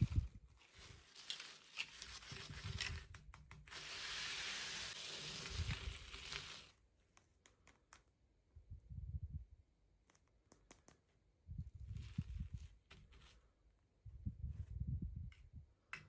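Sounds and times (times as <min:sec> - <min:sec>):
packaging tearing rustle: 0:00.1 - 0:03.1, 0:03.7 - 0:06.7.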